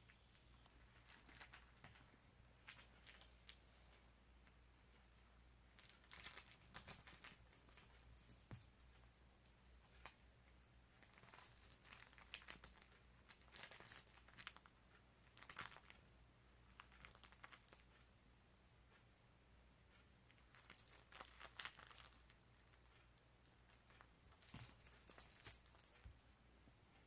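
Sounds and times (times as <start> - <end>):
toy crinkling and rustling: 0.1 - 4.0, 5.7 - 10.3, 11.0 - 16.1, 16.7 - 18.0, 20.3 - 26.4.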